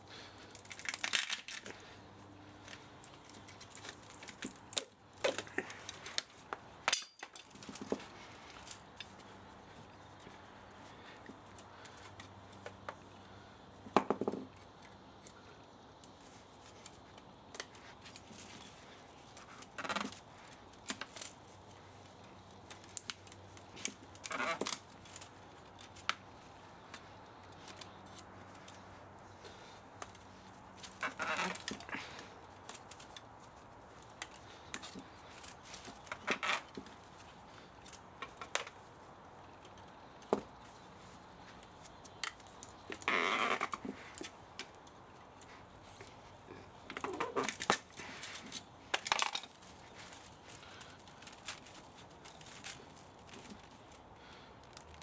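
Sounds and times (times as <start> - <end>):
faint steady hum: 0.0 - 55.0
hand tools clinking on metal: 6.9 - 8.0.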